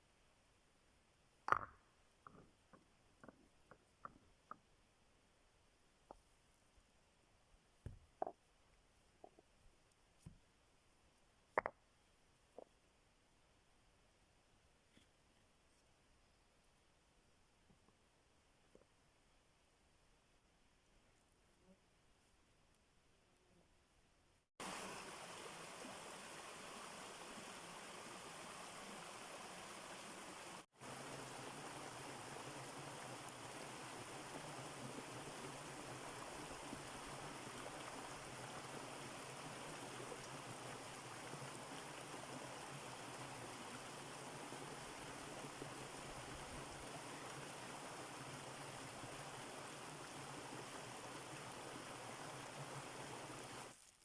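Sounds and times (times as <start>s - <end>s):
running water rushing: 24.6s - 53.8s.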